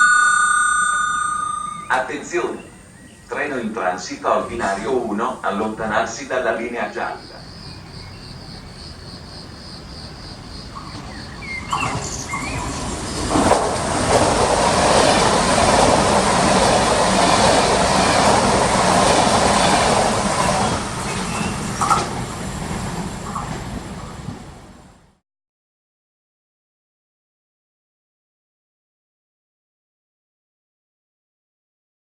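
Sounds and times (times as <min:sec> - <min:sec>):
train wheel squeals: 0:00.0 - 0:03.3, 0:19.5 - 0:22.2
crickets chirping: 0:00.0 - 0:16.7
train rushing rumble: 0:01.0 - 0:25.2.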